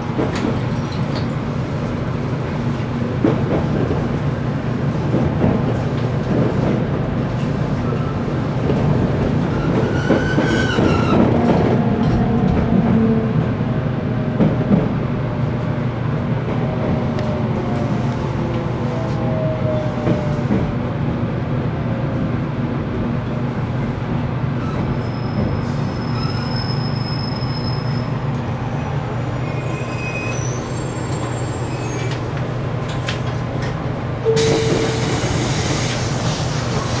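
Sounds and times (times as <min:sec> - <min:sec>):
electric train rumbling: 0:00.0 - 0:37.0
high brake squeals: 0:24.6 - 0:32.2.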